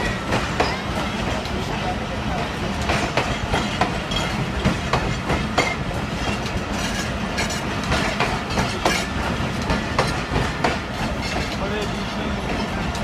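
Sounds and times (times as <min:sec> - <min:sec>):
train low rumble: 0:00.0 - 0:13.0
wheels clunking over rail joints: 0:02.7 - 0:13.0.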